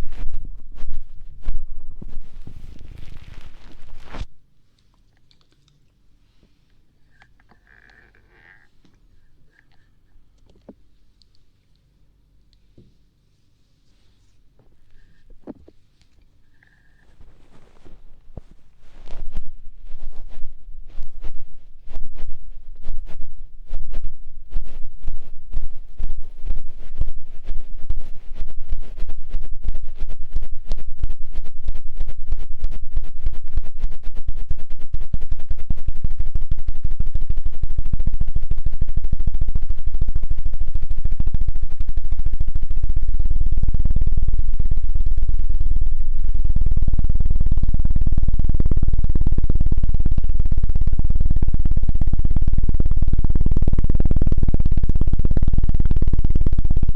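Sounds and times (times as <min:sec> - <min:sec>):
rapid thumps on microphone: 0:00.0 - 0:04.3, 0:14.6 - 0:15.8, 0:17.1 - 0:56.9.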